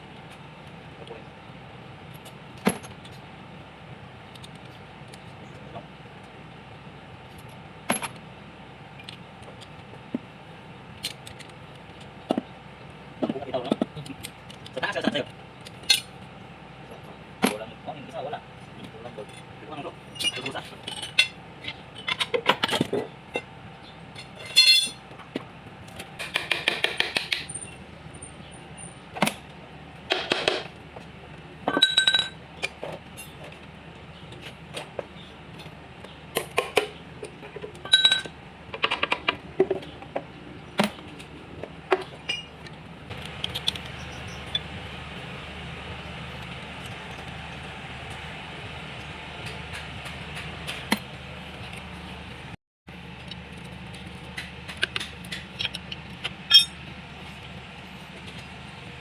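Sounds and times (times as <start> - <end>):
metal tools clinking and knocking: 20.1 - 23.5, 24.2 - 25.0, 31.7 - 33.5, 37.4 - 39.8, 41.9 - 42.5, 55.3 - 56.8.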